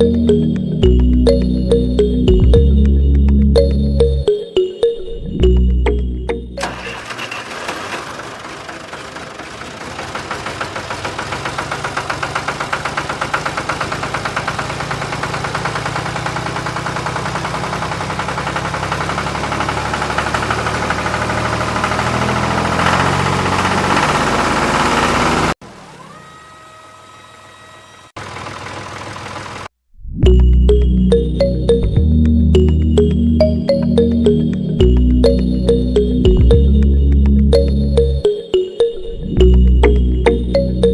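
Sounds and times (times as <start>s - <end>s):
small motor rattling: 6.6s - 25.6s.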